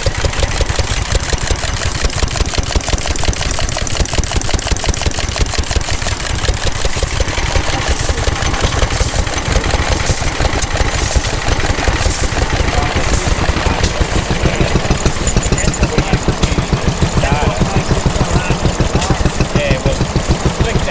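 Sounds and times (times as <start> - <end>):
mechanical clatter: 0.0 - 20.9
stationary engine running: 0.0 - 20.9.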